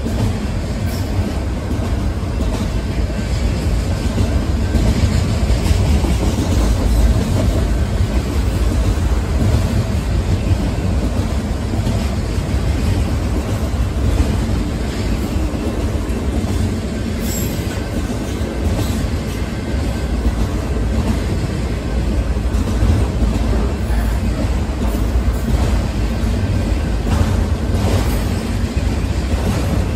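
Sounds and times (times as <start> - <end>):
steel wheels rumbling on rail: 0.0 - 29.9
train cars rattling: 0.0 - 29.9.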